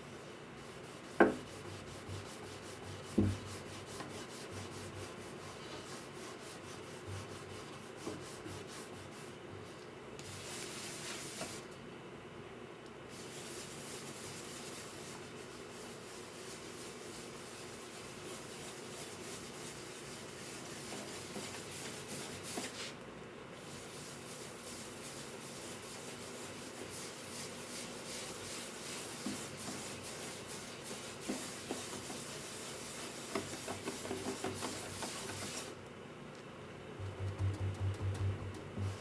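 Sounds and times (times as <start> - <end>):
scratchy rubbing on wood: 23.8 - 35.7.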